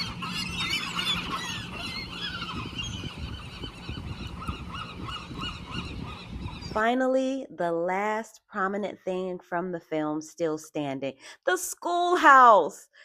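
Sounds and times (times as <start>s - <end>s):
sea lions barking: 0.0s - 3.8s.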